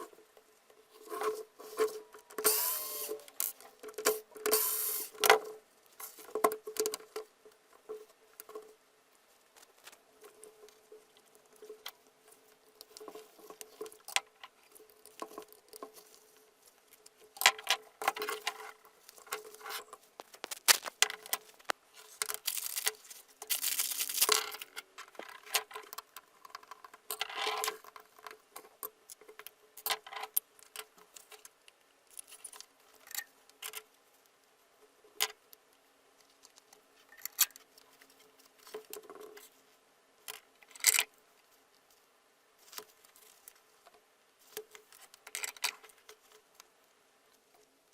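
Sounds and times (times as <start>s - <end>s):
small hard parts clicking and rattling: 0.0s - 8.8s, 9.6s - 34.0s, 42.6s - 46.7s
short scrapes of metal parts: 1.0s - 3.5s, 4.4s - 5.2s.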